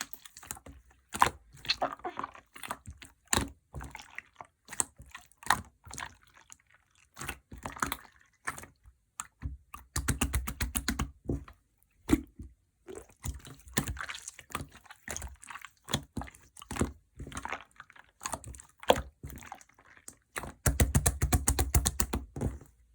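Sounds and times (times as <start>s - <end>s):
slime squished by hand: 0.0s - 6.6s.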